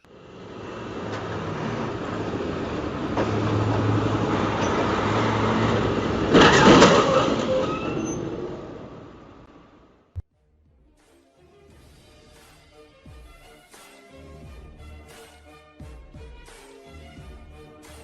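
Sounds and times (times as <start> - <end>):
train rumbling past: 0.0 - 9.9.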